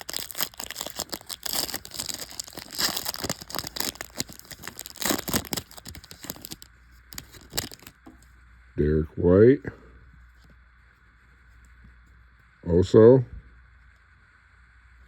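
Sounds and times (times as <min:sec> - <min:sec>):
wrapper tearing and crinkling: 0:00.0 - 0:08.0.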